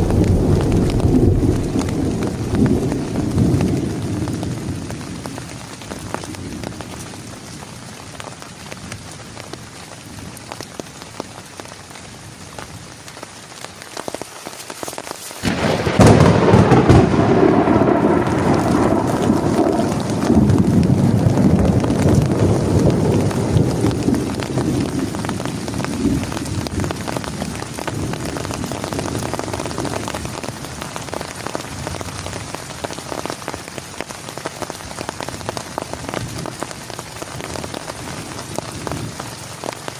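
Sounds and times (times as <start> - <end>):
thunder rolling: 0.0 - 6.8, 15.4 - 30.5
rain falling: 0.0 - 39.9.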